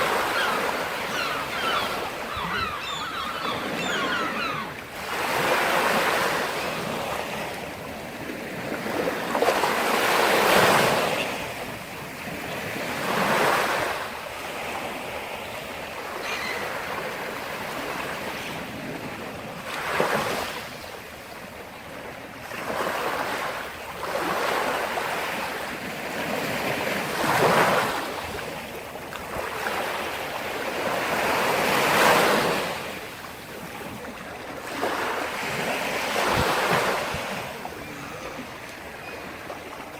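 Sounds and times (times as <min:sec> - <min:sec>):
waves breaking and washing in: 0:00.0 - 0:39.9.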